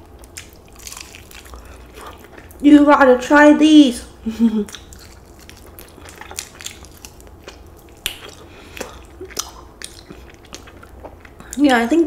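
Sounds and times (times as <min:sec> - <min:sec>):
crunchy chewing: 0:00.1 - 0:02.6, 0:04.6 - 0:11.6.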